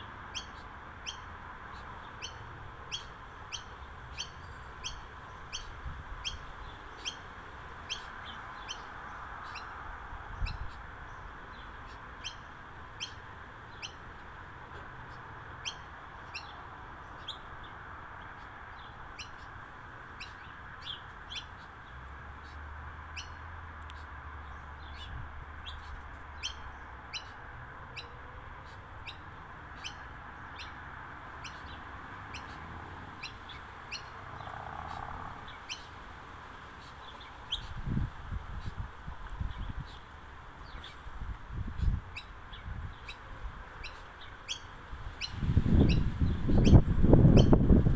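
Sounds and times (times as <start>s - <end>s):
birds chirping: 28.6s - 47.9s.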